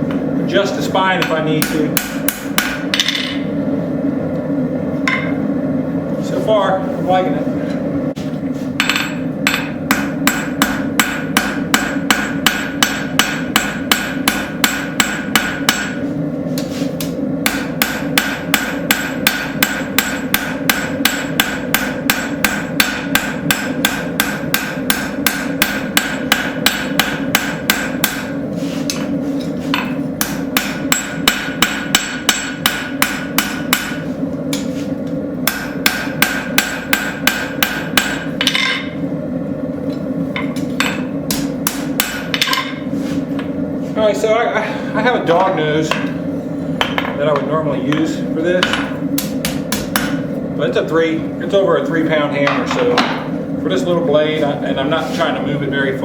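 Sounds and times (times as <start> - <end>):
hammer striking metal on anvil: 1.2 - 3.5, 5.1 - 5.4, 8.8 - 16.0, 17.0 - 34.7, 35.4 - 39.0, 40.4 - 43.5, 45.4 - 46.2, 46.8 - 50.3.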